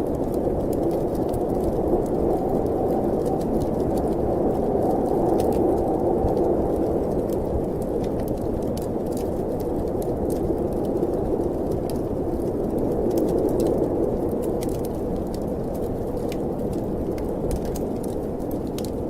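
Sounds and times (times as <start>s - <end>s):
snowstorm wind blowing: 0.0s - 19.0s
wood fire crackling: 0.0s - 19.0s.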